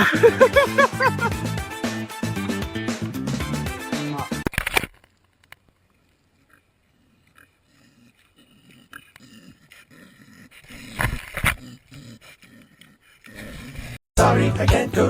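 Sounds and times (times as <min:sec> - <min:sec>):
faint low animal sounds: 0:06.0 - 0:14.0.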